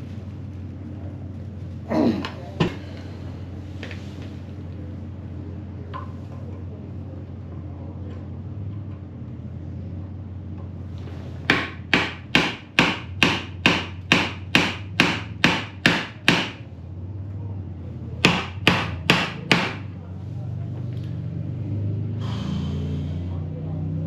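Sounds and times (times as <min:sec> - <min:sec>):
hammer striking exhaust pipe: 0:11.5 - 0:16.6, 0:18.2 - 0:20.0.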